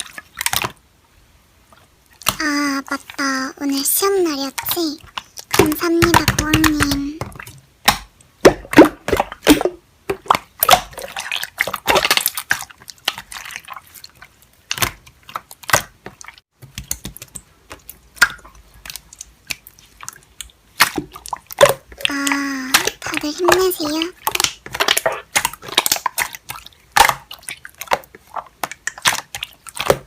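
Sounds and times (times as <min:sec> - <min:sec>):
slime squelching: 0:00.0 - 0:30.0.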